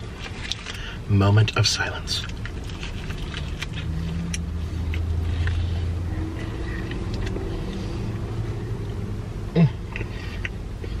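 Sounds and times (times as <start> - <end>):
car idling hum: 0.0 - 11.0.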